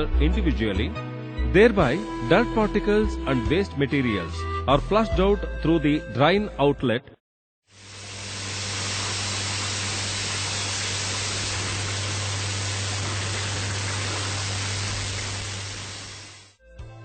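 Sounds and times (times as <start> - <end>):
low hum: 7.8 - 16.6
water rushing: 7.8 - 16.6.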